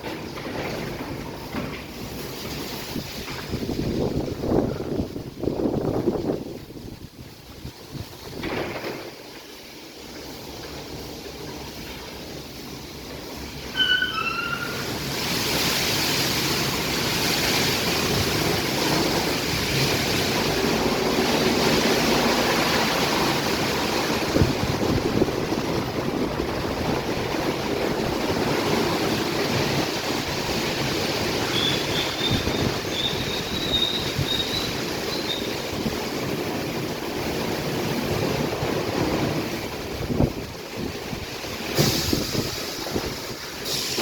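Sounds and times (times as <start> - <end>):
car wash water spray hissing: 0.0 - 44.0
thin rising squeal: 13.7 - 15.0.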